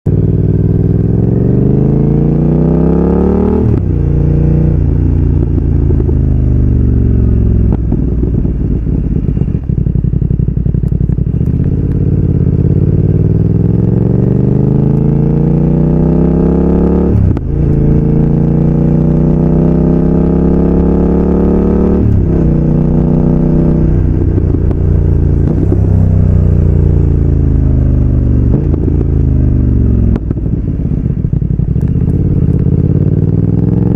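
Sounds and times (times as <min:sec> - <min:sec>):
motorcycle engine revving: 0:00.1 - 0:33.9.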